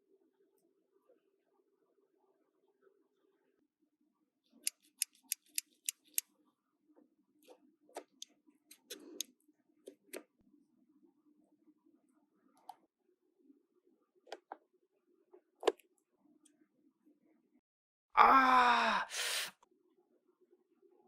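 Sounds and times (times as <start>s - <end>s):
plastic toy pieces clicking: 4.7s - 6.2s, 8.0s - 9.2s.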